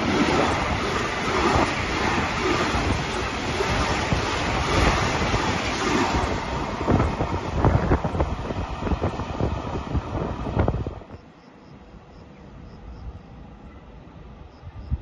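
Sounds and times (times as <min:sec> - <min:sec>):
wind buffeting microphone: 0:00.0 - 0:11.2, 0:13.5 - 0:15.0
freight train wheels rumbling: 0:00.0 - 0:11.3.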